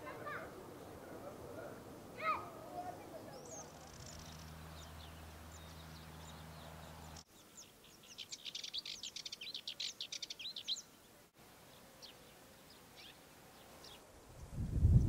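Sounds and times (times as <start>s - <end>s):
high bird calls: 0.0s - 11.0s
small songbird singing: 2.8s - 15.0s.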